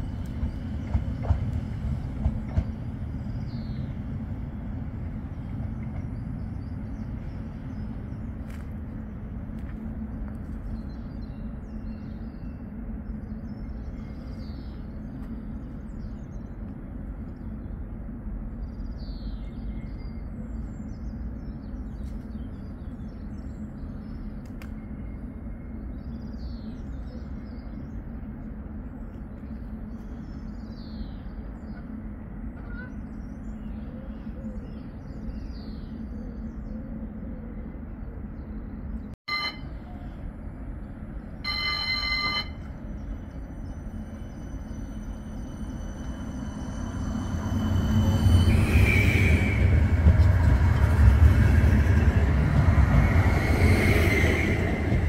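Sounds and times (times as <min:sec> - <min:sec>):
birds chirping: 0:00.0 - 0:16.7, 0:40.9 - 0:55.0
steady low rumble: 0:00.0 - 0:55.0.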